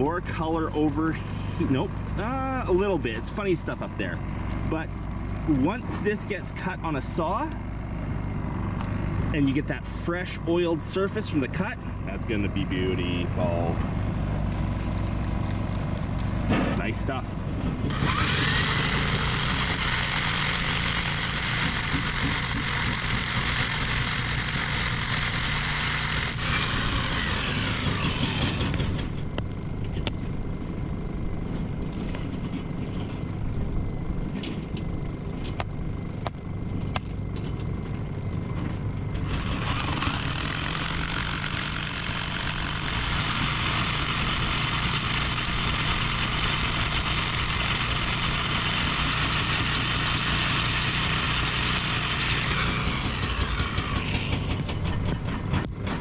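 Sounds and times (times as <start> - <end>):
heavy excavator running: 0.0 - 56.0
hydraulic hammer breaking stone: 17.8 - 29.1, 39.2 - 56.0.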